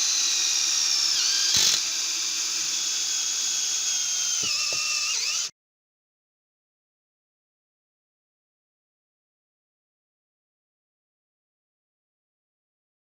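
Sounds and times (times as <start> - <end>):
drill driver motor whining: 0.0 - 5.5.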